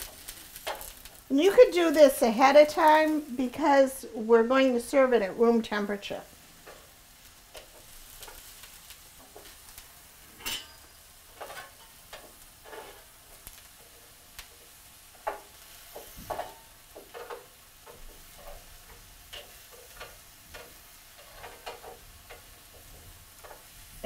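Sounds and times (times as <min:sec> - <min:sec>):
food sizzling on a griddle: 0:00.0 - 0:24.0.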